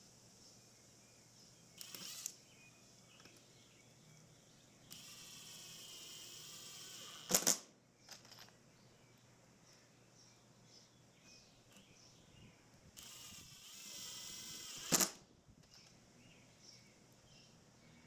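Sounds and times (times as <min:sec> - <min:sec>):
mechanical whine: 0:01.7 - 0:02.4, 0:04.8 - 0:07.4, 0:13.0 - 0:15.1.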